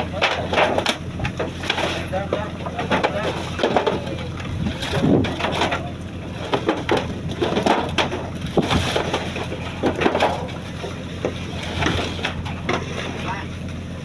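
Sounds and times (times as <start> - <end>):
knocks and clatter on deck: 0.0 - 12.9
boat engine humming: 0.0 - 14.0.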